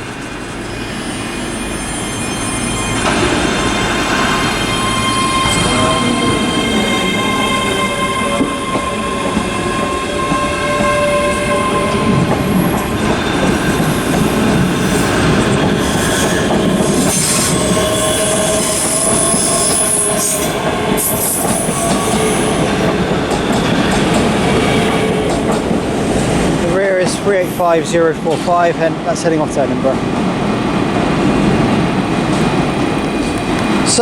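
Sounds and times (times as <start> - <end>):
train rumble and clatter: 0.0 - 34.0
high wheel squeal: 0.2 - 25.3.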